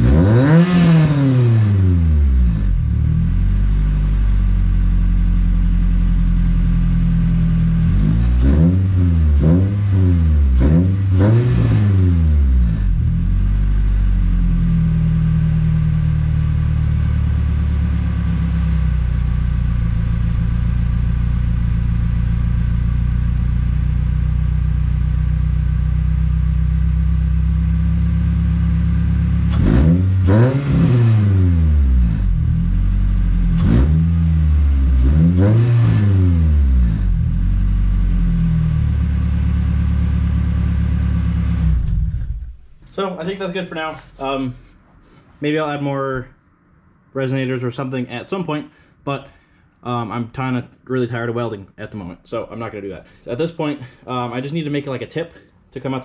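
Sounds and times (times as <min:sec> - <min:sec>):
engine revving: 0:00.0 - 0:04.1, 0:06.7 - 0:20.7, 0:27.2 - 0:44.8
car engine idling: 0:02.0 - 0:09.6, 0:12.2 - 0:29.7, 0:36.6 - 0:45.0.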